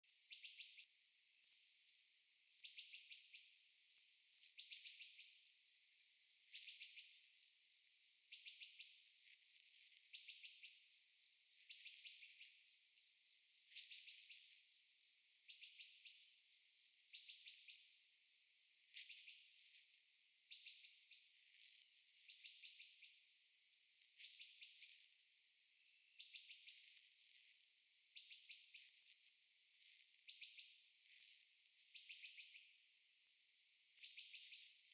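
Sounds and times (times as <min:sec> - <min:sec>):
cricket chirping: 0:00.0 - 0:34.9
high-pitched insect hiss: 0:15.4 - 0:34.9.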